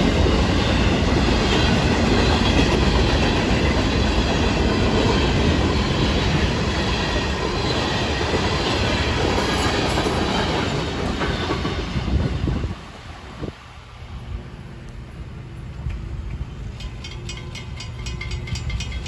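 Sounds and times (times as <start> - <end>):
train wheels clacking over rail joints: 0.0 - 12.8, 15.6 - 19.0.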